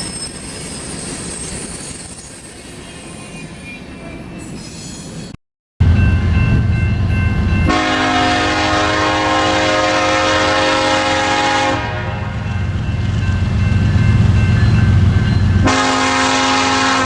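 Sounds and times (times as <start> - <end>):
diesel locomotive engine rumble: 5.8 - 17.0
multi-chime air horn blast: 5.9 - 12.7, 14.4 - 17.0.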